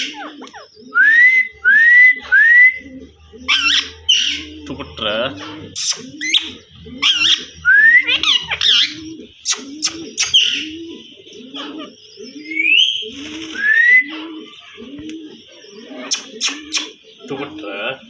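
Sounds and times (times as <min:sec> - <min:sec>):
bird low cooing: 0:00.0 - 0:18.0
parrot whistles and squawks: 0:03.5 - 0:04.5, 0:05.7 - 0:10.7, 0:16.0 - 0:17.0.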